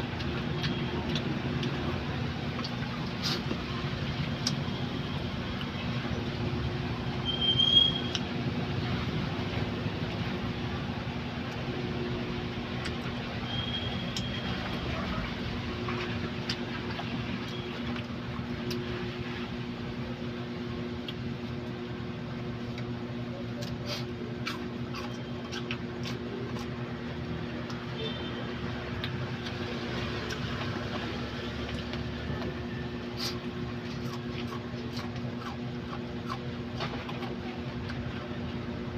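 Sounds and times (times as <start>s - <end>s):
steady electrical hum: 0.0s - 38.9s
chewing: 0.1s - 3.6s, 23.5s - 27.8s, 28.9s - 38.4s.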